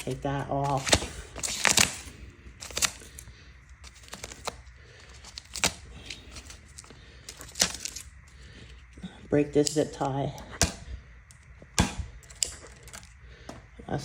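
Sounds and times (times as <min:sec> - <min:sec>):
plastic rustling: 0:00.0 - 0:13.8
scissors snapping through zip ties: 0:03.8 - 0:08.4, 0:09.6 - 0:13.2.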